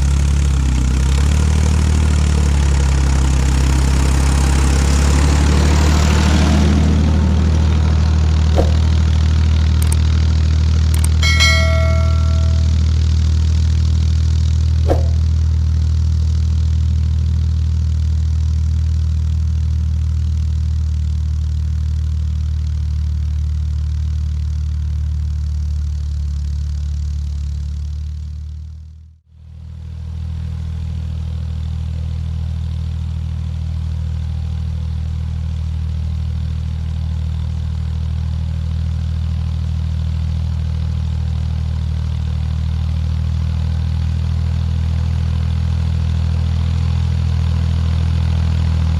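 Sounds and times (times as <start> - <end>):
short metallic clang: 8.6 - 8.9, 11.0 - 12.9, 14.9 - 15.2.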